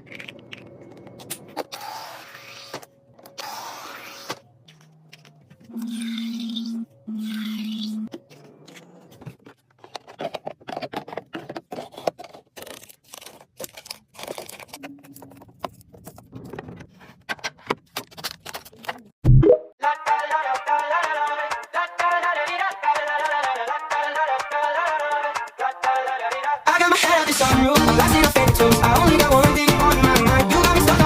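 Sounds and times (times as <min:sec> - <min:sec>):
packages clattering and clicking: 0:08.1 - 0:19.1
packaging rustling: 0:08.1 - 0:19.1.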